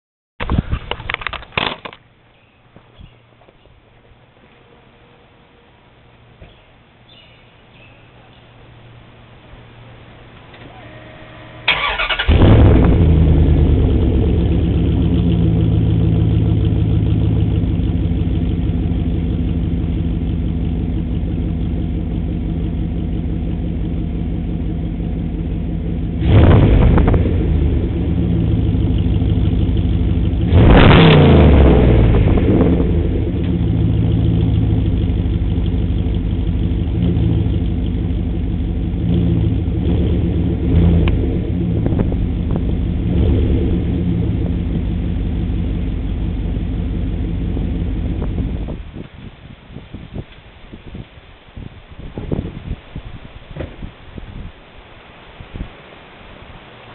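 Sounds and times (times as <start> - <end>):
engine starting idling and revving: 10.5 - 49.0.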